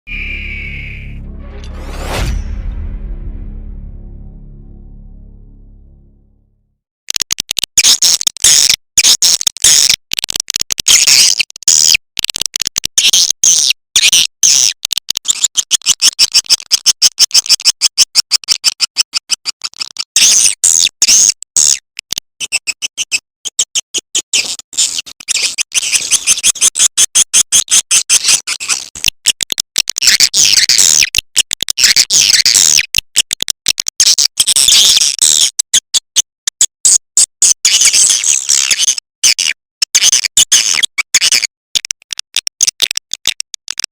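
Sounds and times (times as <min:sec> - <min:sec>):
high-pitched bird chirping trills: 0:00.1 - 0:01.2.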